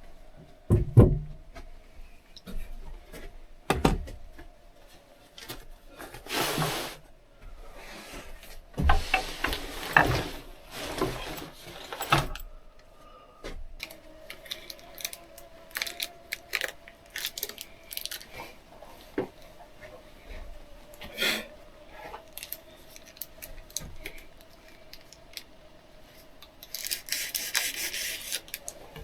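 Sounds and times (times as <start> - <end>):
wood knocking and scraping: 8.8 - 12.4.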